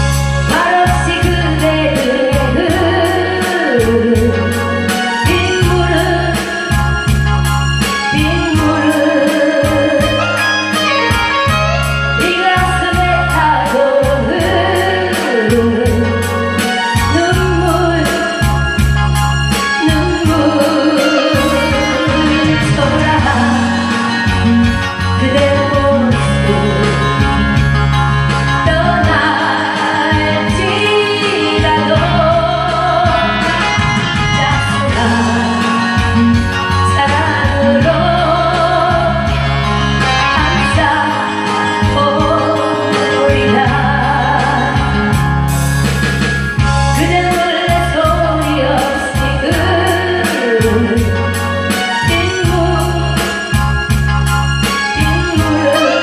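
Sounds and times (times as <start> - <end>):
band playing: 0.0 - 56.0
person singing with vibrato: 19.6 - 45.5, 46.8 - 56.0.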